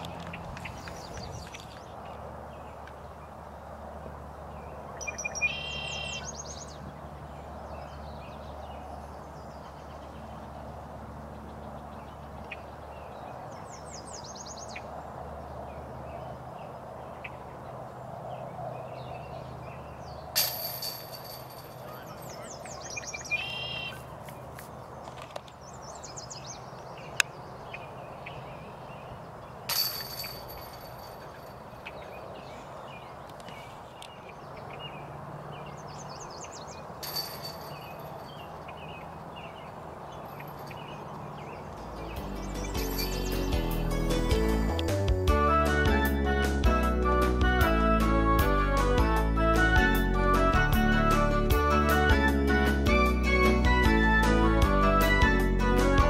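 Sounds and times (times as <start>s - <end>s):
bird chirping: 0.0s - 3.4s, 4.4s - 45.0s
sharp ringing strikes: 37.0s - 38.5s.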